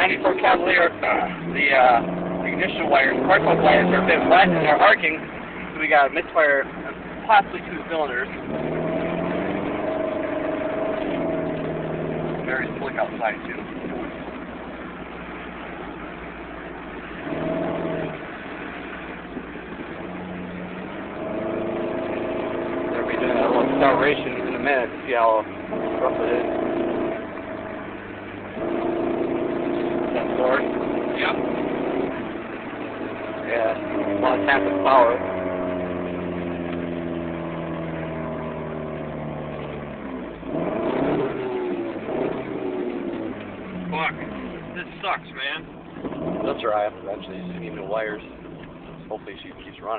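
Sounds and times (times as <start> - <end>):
car engine misfiring: 0.0 - 49.9.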